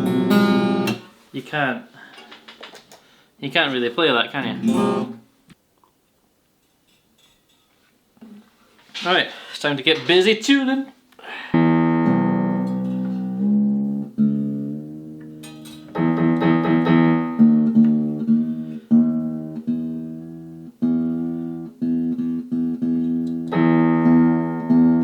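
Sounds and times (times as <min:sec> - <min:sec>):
guitar string plucked: 0:04.6 - 0:05.2, 0:11.6 - 0:25.0.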